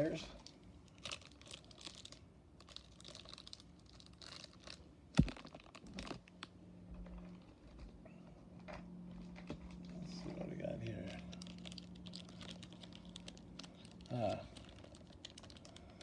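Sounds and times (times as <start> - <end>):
plastic packaging crinkling: 0.4 - 6.5, 10.8 - 16.0.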